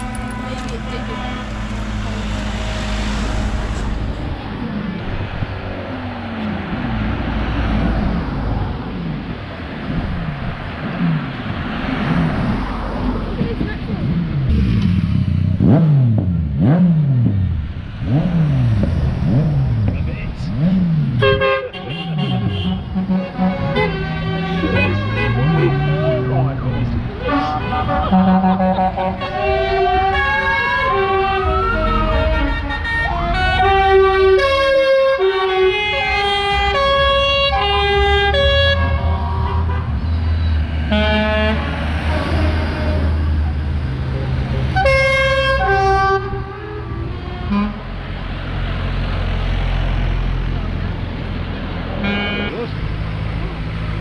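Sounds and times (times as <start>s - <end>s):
vehicle engine revving: 0.0s - 54.0s
electronic siren whoop: 30.3s - 32.5s.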